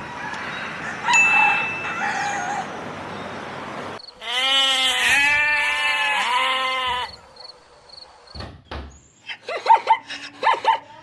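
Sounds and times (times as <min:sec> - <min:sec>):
goat bleating: 0:04.2 - 0:07.2.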